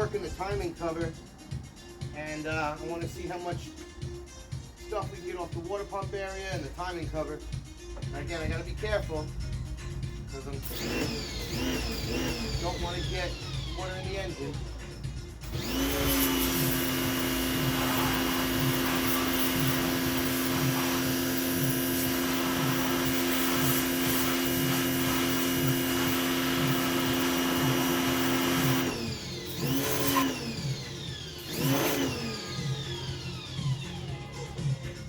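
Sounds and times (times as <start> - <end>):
pressure washer spraying: 10.6 - 13.3, 15.4 - 30.7, 31.4 - 33.0.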